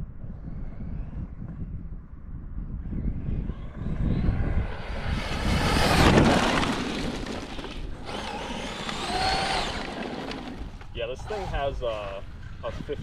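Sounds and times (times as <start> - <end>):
rc truck motor whine: 3.6 - 11.8.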